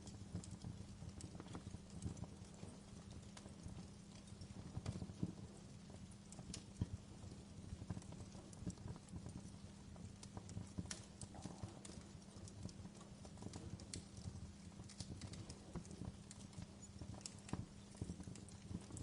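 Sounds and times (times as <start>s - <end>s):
faint steady hum: 0.0s - 19.0s
wood fire crackling: 0.0s - 19.0s.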